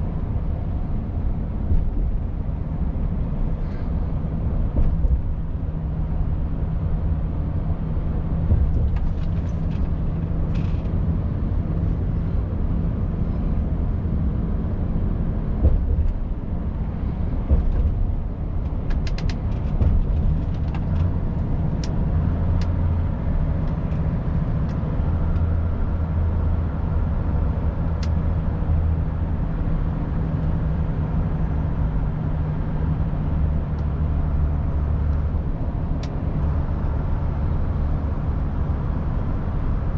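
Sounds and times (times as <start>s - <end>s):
road noise: 0.0s - 39.9s
truck diesel engine droning: 19.9s - 39.9s.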